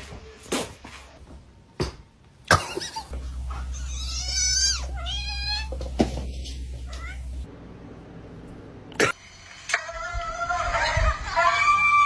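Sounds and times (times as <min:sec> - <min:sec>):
cat meowing: 0:03.7 - 0:05.8.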